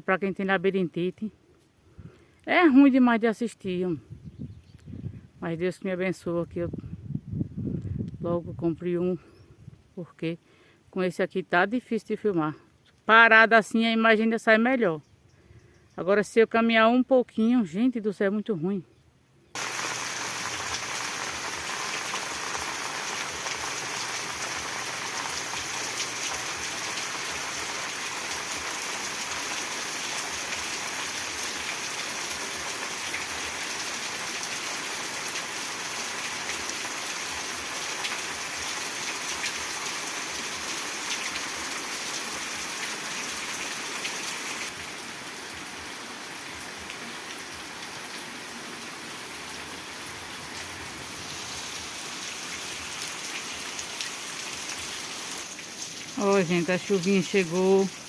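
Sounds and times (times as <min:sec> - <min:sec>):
light rain hiss: 0:01.3 - 0:02.8, 0:09.3 - 0:11.0, 0:19.5 - 0:58.0.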